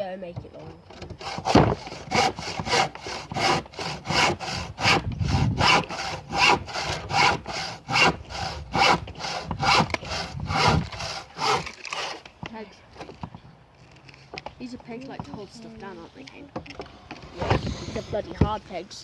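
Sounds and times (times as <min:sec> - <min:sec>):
hand saw cutting wood: 0:00.9 - 0:12.2.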